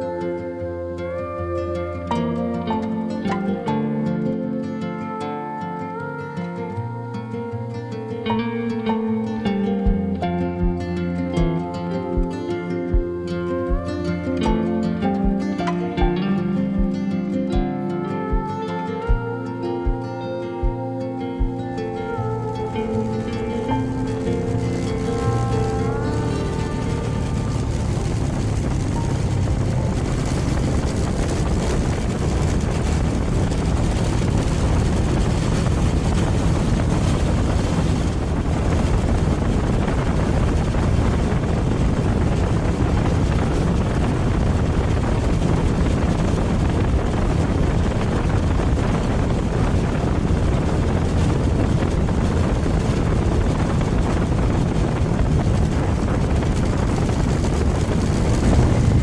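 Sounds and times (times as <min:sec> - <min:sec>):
wind noise on microphone: 0:00.0 - 0:59.0
motorcycle engine running: 0:22.9 - 0:59.0.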